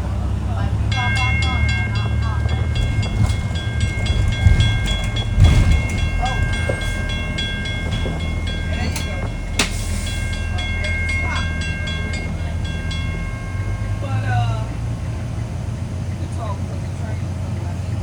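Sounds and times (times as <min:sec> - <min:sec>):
freight train rumbling: 0:00.0 - 0:18.0
wheel flanges squealing: 0:00.0 - 0:18.0
train wheel clicks: 0:00.8 - 0:14.0.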